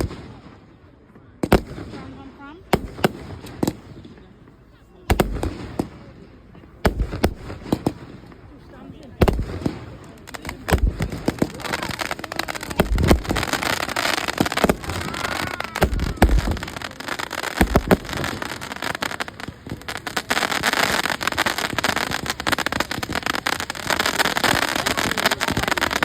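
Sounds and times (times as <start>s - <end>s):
fireworks crackling: 0.0s - 26.0s
fireworks shells bursting: 9.2s - 26.0s.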